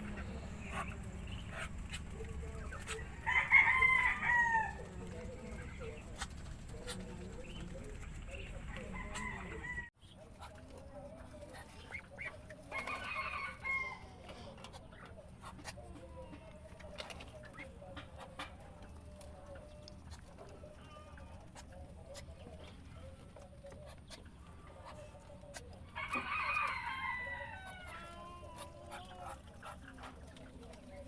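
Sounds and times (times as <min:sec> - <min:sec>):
steady low hum: 0:00.0 - 0:12.4
rooster crowing: 0:03.1 - 0:04.9, 0:08.8 - 0:09.9, 0:12.7 - 0:14.1, 0:26.0 - 0:28.3.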